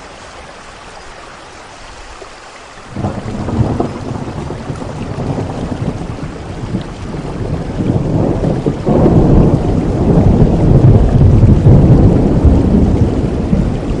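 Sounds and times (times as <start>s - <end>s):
steady rain: 0.0s - 14.0s
thunder rumbling: 2.9s - 14.0s.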